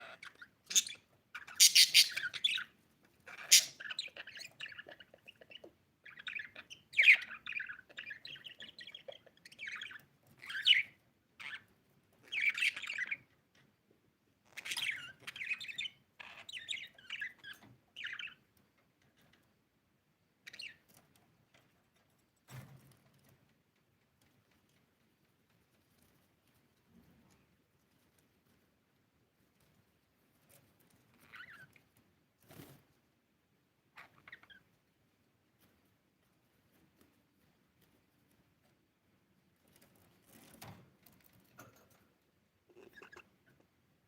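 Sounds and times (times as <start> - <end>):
budgie chirping and squawking: 0.0 - 11.6, 14.5 - 18.4, 31.2 - 31.8, 34.0 - 34.7, 42.7 - 43.6.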